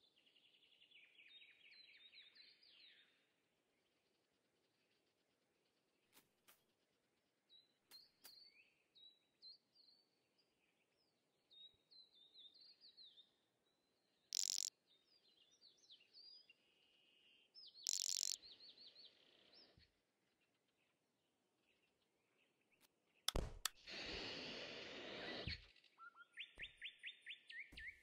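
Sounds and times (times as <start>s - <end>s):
birds chirping: 7.5s - 23.8s, 25.1s - 28.0s.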